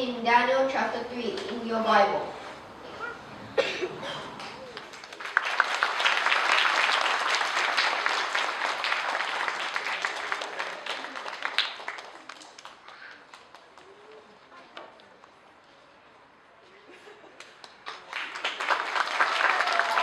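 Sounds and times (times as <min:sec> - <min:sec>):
audience applauding: 0:03.0 - 0:14.0, 0:17.4 - 0:20.0.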